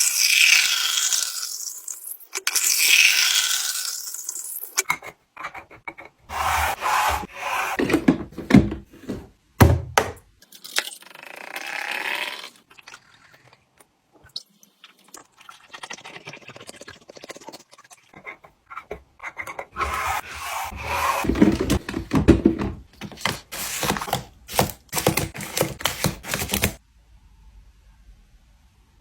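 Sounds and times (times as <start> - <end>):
items rubbing and scraping: 4.8 - 9.4, 18.1 - 26.8.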